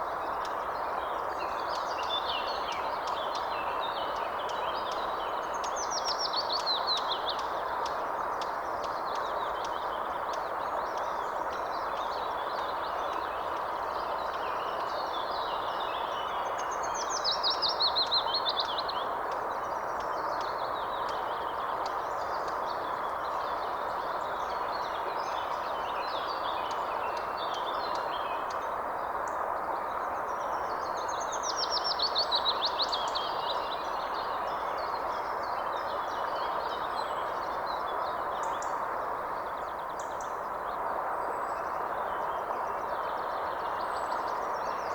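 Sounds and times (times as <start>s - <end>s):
steady background hiss: 0.0s - 44.9s.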